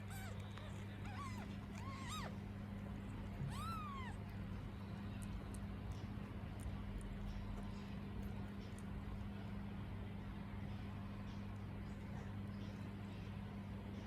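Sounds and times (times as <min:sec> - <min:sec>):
kittens mewing: 0:00.0 - 0:05.4
steady low hum: 0:00.0 - 0:14.0.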